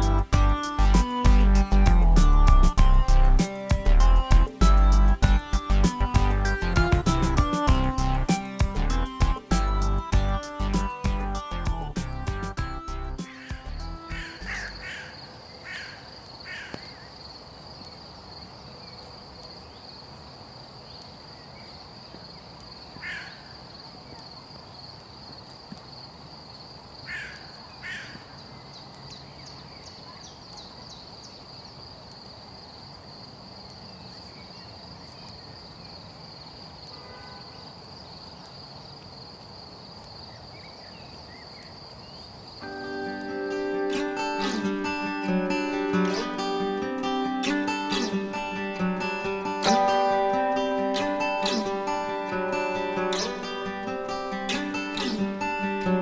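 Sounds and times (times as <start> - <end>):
harsh bird calls: 13.2 - 17.2, 22.9 - 24.2, 27.1 - 31.5, 44.2 - 49.8, 51.2 - 56.0
high-pitched insect whine: 50.8 - 56.0.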